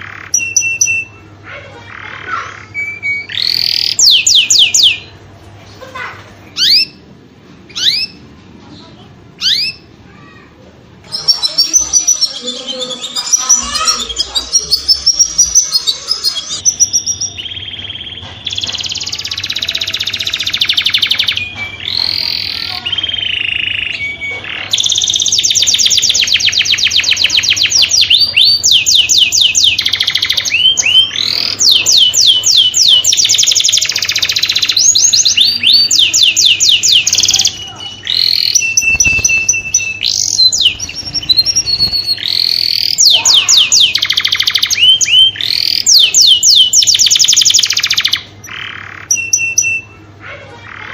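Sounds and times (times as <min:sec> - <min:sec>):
canary singing: 0:00.0 - 0:50.9.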